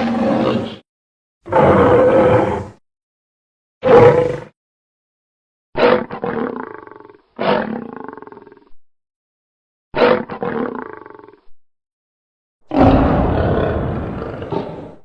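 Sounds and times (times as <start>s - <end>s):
lion roaring: 0.0s - 0.8s, 1.5s - 2.8s, 3.8s - 4.5s, 12.7s - 15.0s.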